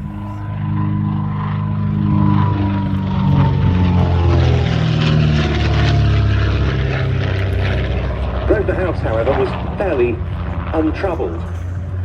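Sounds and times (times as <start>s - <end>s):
propeller aircraft flying past: 0.0s - 12.0s.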